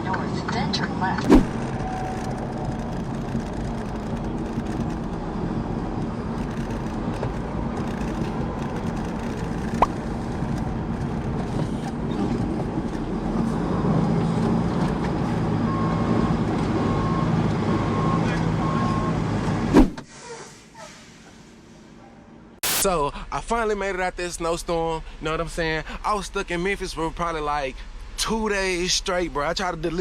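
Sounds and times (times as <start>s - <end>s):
truck engine and road rumble: 0.0s - 22.9s, 24.0s - 30.0s
short sharp pop: 19.8s - 20.0s.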